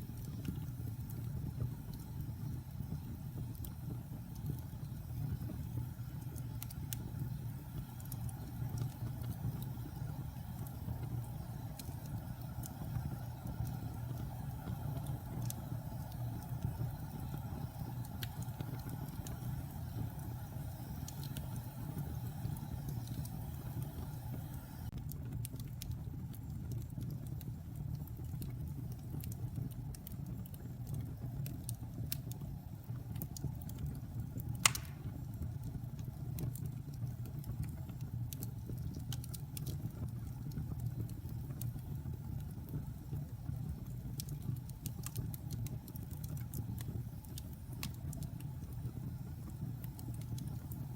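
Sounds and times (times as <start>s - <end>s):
fire flames rumbling: 0.0s - 50.9s
wood fire crackles: 0.0s - 50.9s
sharp pop from fire: 34.6s - 35.3s.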